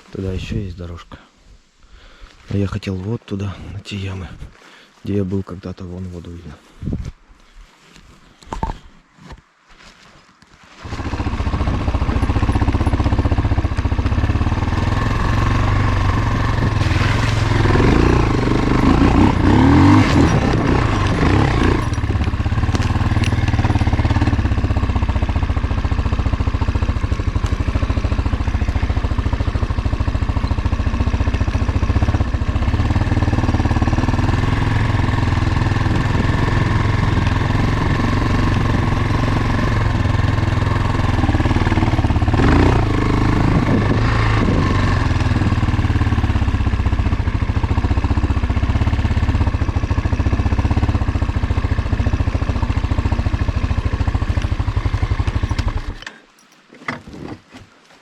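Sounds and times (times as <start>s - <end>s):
motorcycle engine running: 10.8s - 56.3s.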